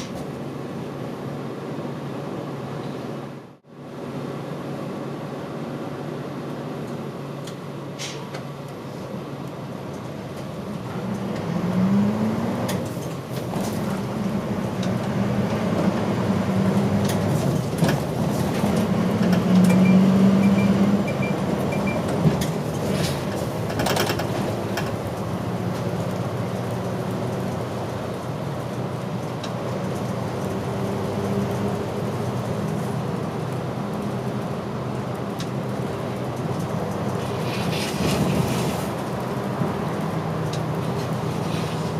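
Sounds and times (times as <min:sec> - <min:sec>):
bus diesel engine: 0:00.0 - 0:41.9
short high beeps: 0:19.7 - 0:22.0
rattles and clicks: 0:21.8 - 0:25.9.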